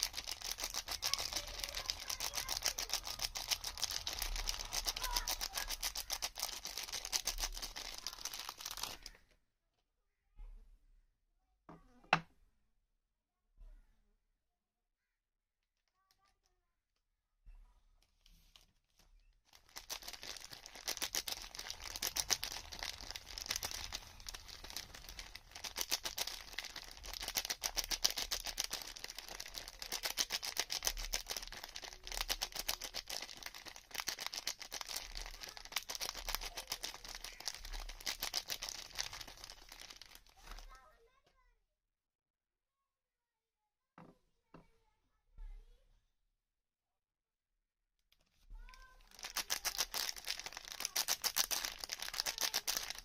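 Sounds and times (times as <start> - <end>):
wrapper crinkling and tearing: 0.0 - 9.2, 18.2 - 40.7, 49.0 - 53.0.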